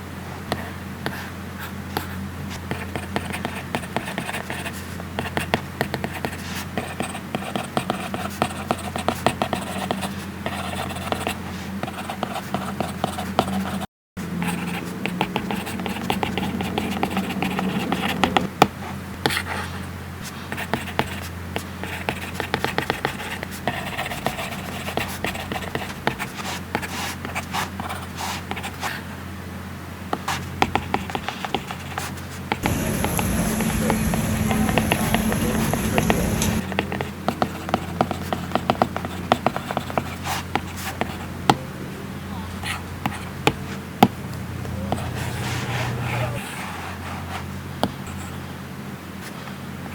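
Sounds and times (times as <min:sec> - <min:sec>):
stylus tapping and scratching screen: 0:14.4 - 0:18.6, 0:30.2 - 0:41.7
steady high hiss: 0:32.6 - 0:36.6.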